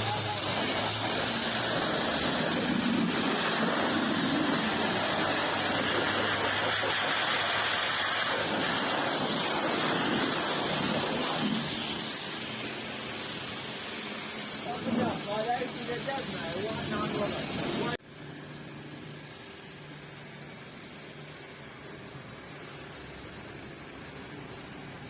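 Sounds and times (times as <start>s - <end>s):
pressure washer spraying water: 0.0s - 25.0s.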